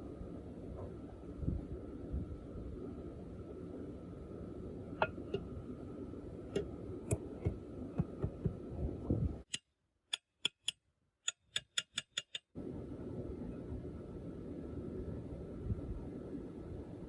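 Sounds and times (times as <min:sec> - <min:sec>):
steady low hum: 0:00.0 - 0:09.6, 0:12.5 - 0:17.0
sharp clicks and taps: 0:09.4 - 0:12.5.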